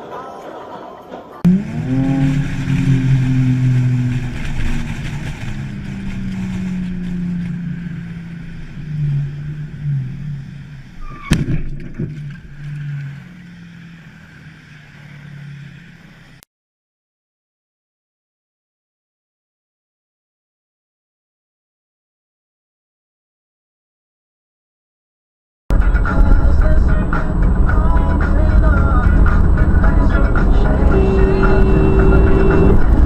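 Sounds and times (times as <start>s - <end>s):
car engine revving: 1.4s - 16.4s, 25.7s - 33.0s.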